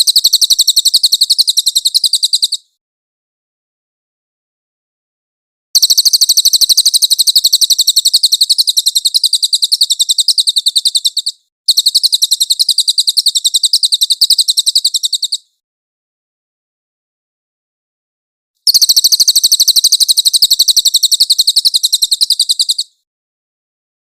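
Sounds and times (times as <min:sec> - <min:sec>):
bird singing high-pitched trill: 0:00.0 - 0:02.8, 0:05.8 - 0:15.5, 0:18.7 - 0:23.0.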